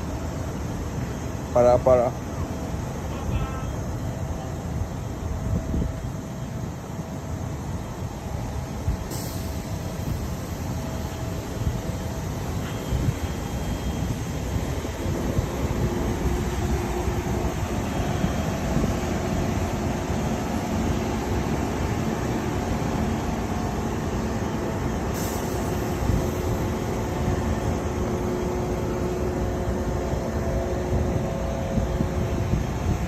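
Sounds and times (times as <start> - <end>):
rushing noise: 0.0 - 33.0.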